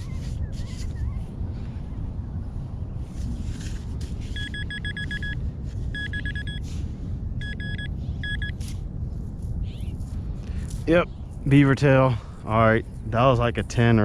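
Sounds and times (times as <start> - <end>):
low background rumble: 0.0 - 14.0
metal detector beeping: 4.3 - 6.7, 7.4 - 8.7.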